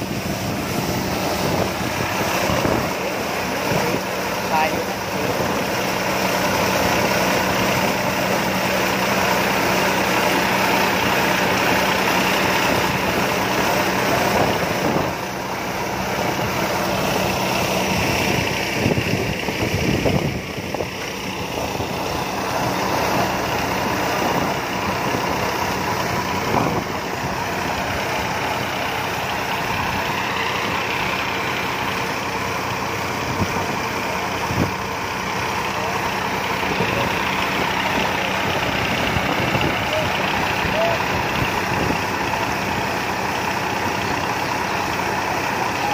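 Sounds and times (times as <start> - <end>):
harvester diesel engine: 0.0 - 45.9
threshing machinery whirring and rattling: 0.0 - 45.9.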